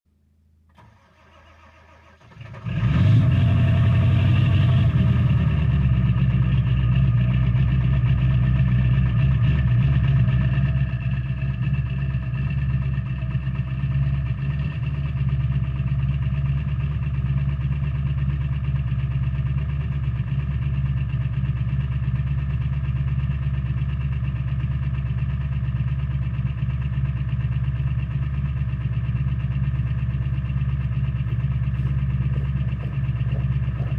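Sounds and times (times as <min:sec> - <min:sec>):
diesel engine cranking and idling: 0:00.7 - 0:33.9.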